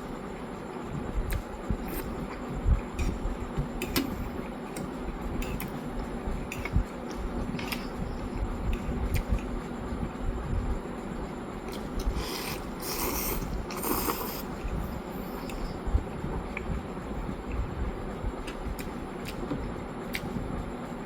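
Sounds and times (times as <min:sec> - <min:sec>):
chewing noodles: 0:11.7 - 0:15.7.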